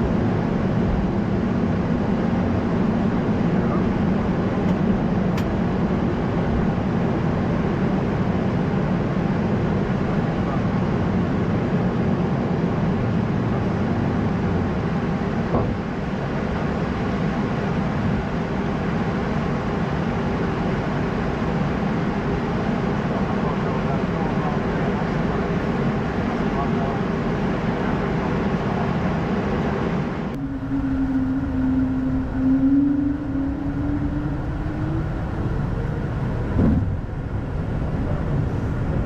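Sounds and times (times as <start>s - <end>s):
airflow and engine noise: 0.0s - 39.0s
low hum: 30.0s - 39.0s.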